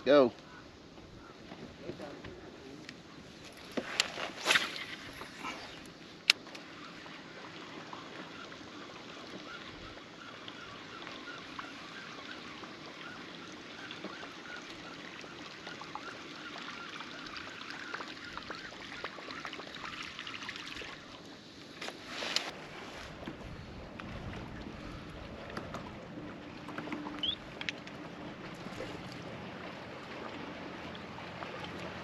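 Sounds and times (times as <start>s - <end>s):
water lapping along kayak hull: 0.1s - 32.0s
small ticks and clicks: 26.6s - 28.0s.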